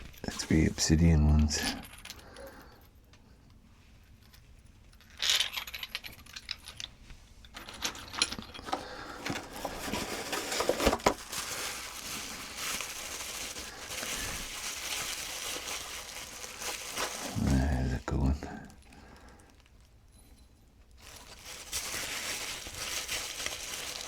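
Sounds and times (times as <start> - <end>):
rustling packing: 0.0 - 2.2, 7.6 - 19.9, 21.0 - 24.0.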